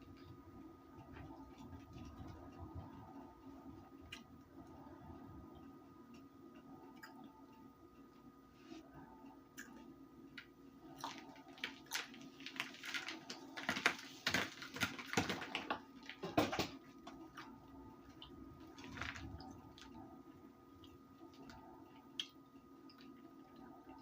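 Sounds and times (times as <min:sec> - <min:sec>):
baked cornstarch crunching: 0:11.0 - 0:16.2.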